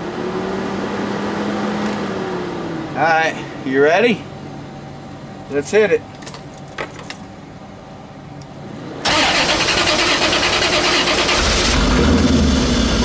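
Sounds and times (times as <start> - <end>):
car engine idling: 7.4 - 13.0
starter cranking engine: 9.0 - 13.0.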